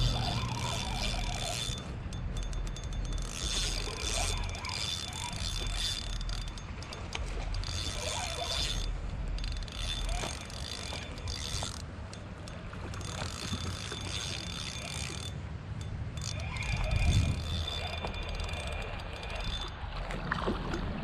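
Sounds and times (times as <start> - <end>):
fishing reel whirring and clicking: 0.0 - 20.9
wind rumble on microphone: 15.6 - 21.0.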